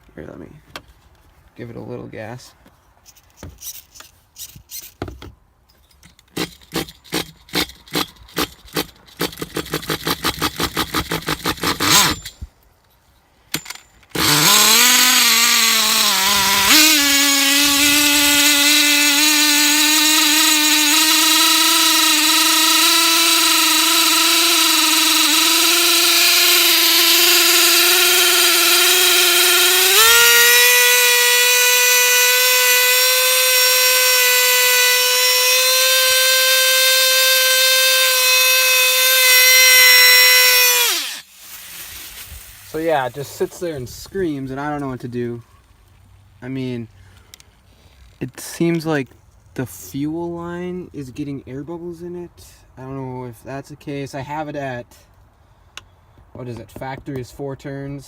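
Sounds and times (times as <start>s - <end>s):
small engine being cranked: 6.1s - 12.4s, 13.5s - 41.3s
small engine high-pitched scream: 14.2s - 41.3s.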